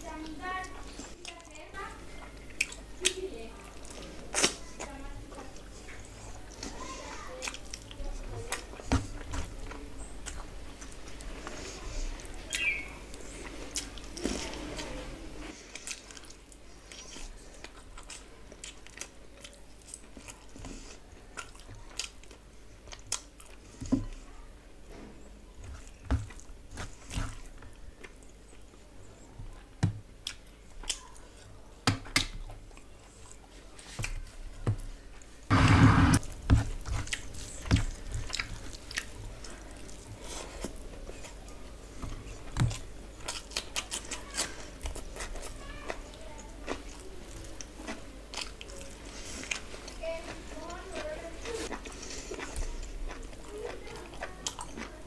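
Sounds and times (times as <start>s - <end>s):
noisy burst: 35.5s - 36.2s
person chewing and biting: 35.5s - 41.5s, 42.1s - 45.6s, 46.6s - 55.0s.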